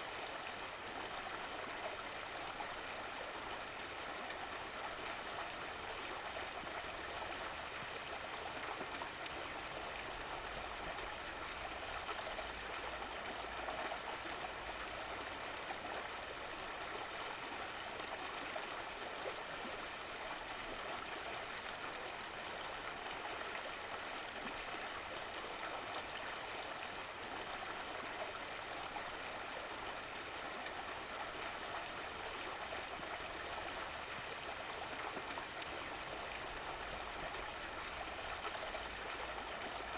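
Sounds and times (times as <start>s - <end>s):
stream flowing and trickling: 0.0s - 39.9s.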